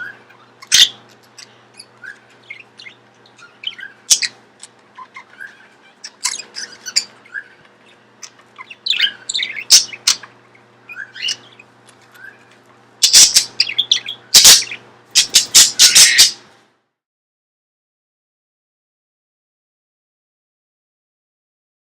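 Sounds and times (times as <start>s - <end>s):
small parrots chirping: 0.0s - 16.4s.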